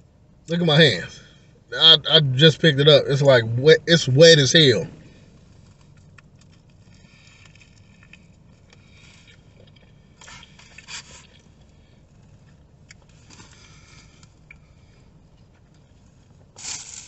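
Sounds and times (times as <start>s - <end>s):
low steady hum: 0.0s - 17.0s
man chewing wetly: 5.6s - 17.0s.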